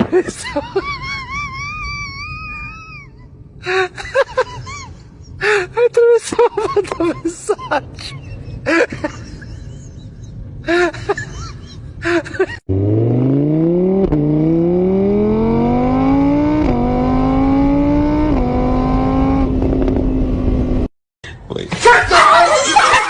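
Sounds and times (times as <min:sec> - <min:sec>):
car engine accelerating hard: 0:12.7 - 0:20.9.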